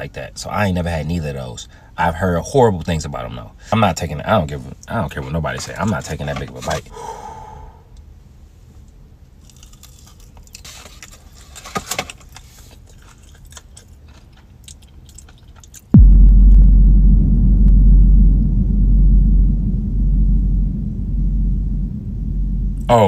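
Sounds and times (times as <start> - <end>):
crunchy food chewing: 9.4 - 15.9
loud deep rumble: 16.0 - 23.0.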